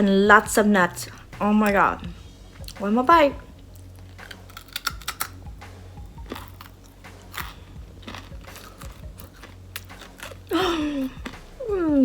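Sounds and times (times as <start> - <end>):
crunchy chewing of brittle: 3.6 - 11.7.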